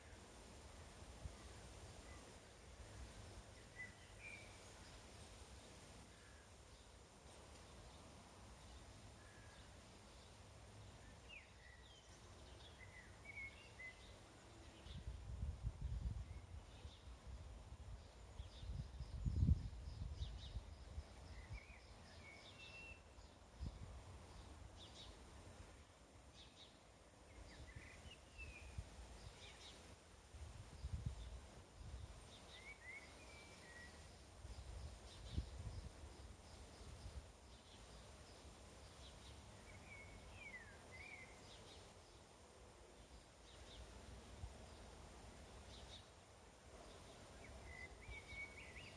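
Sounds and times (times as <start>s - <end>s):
faint bird chirps: 1.2s - 30.0s, 30.6s - 48.9s
wind rumble on microphone: 14.7s - 22.7s, 23.5s - 25.6s, 27.3s - 41.0s.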